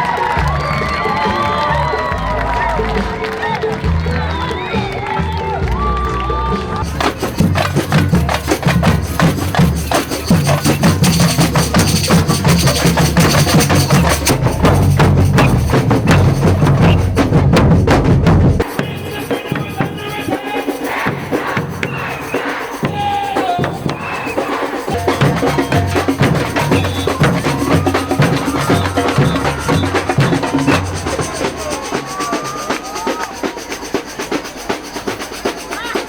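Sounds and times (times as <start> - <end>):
drums and percussion playing: 0.0 - 36.0
pitched percussion tones: 0.0 - 36.0
heavy low beat: 6.8 - 19.1.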